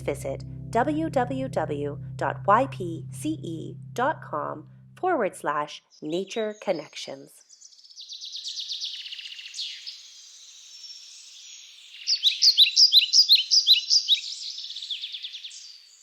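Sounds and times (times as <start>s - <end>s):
birds chirping and trilling: 5.8s - 16.0s.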